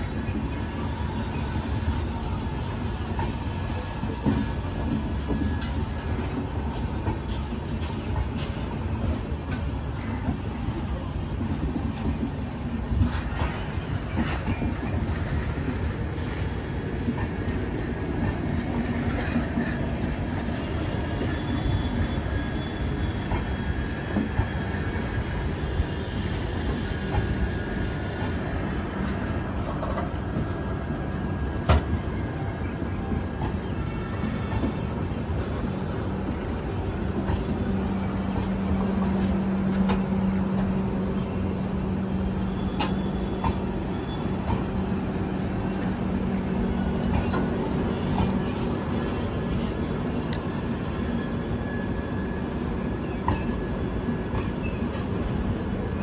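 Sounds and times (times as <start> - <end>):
train wheels rumbling over rails: 0.0 - 56.0
high wheel squeal: 20.6 - 24.9.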